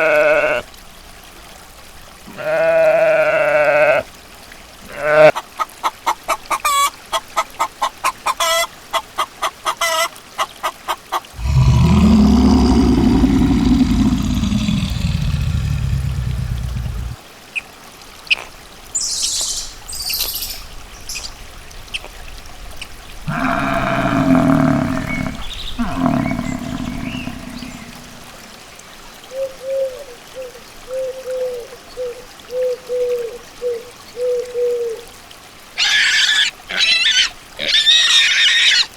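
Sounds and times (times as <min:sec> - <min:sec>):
animal calls: 0:11.4 - 0:17.2, 0:23.3 - 0:28.4, 0:35.8 - 0:38.9.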